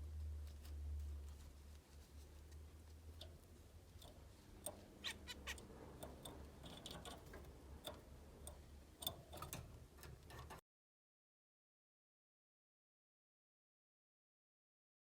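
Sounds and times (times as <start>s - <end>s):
low steady hum: 0.0s - 10.6s
faint canary chirps: 3.2s - 9.4s.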